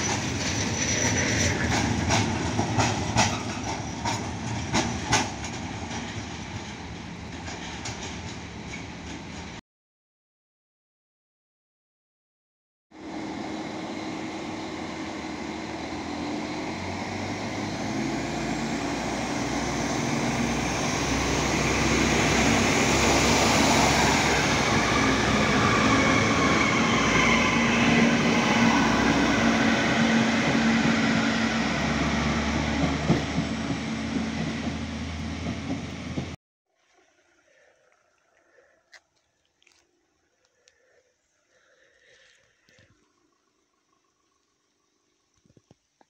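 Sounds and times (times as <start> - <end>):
diesel train passing: 0.0 - 9.6, 13.0 - 36.4.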